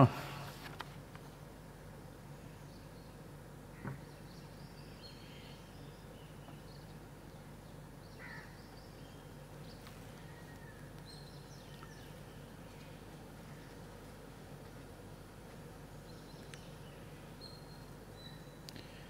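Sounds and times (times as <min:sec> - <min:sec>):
steady low hum: 0:00.0 - 0:19.0
faint bird chirps: 0:16.0 - 0:19.0.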